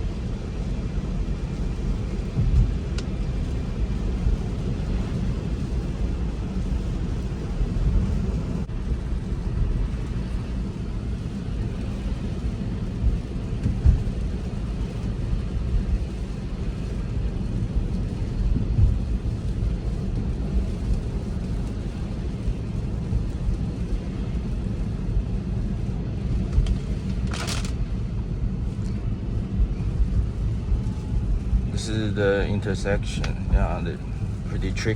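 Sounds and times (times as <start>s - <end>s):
tyres on road rumble: 0.0s - 34.9s.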